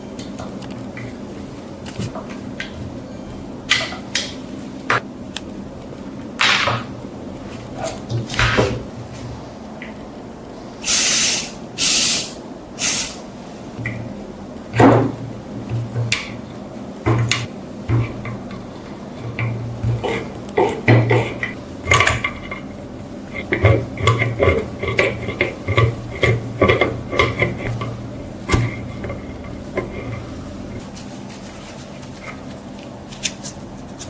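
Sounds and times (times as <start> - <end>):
short hissing spray bursts: 10.8 - 13.2.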